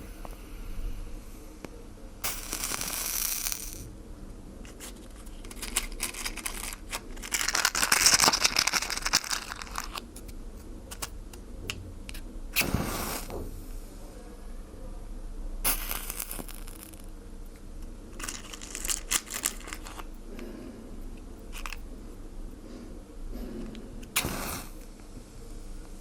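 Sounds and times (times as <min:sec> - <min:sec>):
water hissing on fire: 0:12.6 - 0:13.4, 0:15.7 - 0:16.8, 0:24.2 - 0:24.8.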